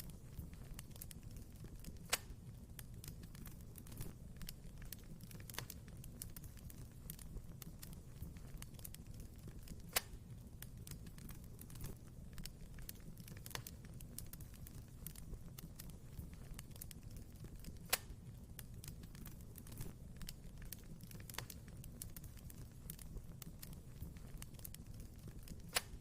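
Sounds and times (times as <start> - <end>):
fireplace fire crackling: 0.0 - 26.0.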